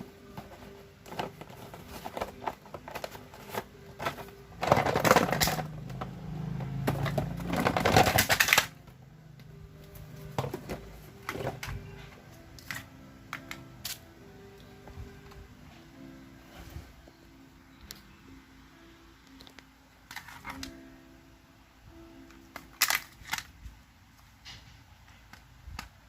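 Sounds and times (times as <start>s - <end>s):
dense rattling and rubbing: 0.4s - 8.8s
small plastic parts clicking: 7.0s - 8.8s, 22.3s - 23.6s.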